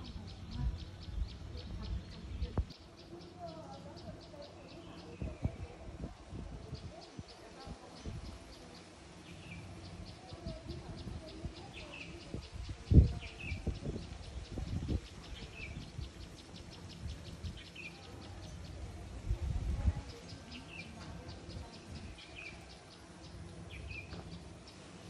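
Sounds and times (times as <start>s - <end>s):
bird chirping: 20.0s - 25.0s.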